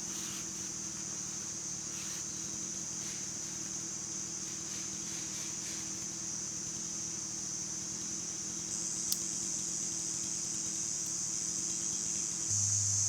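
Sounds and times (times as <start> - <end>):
insects droning: 0.0 - 13.0
faint low hum: 12.5 - 13.0.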